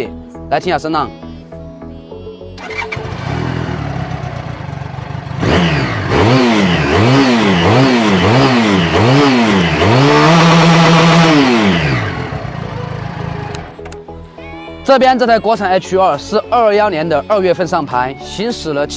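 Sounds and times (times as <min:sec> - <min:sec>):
motorcycle engine revving: 0:02.6 - 0:13.8.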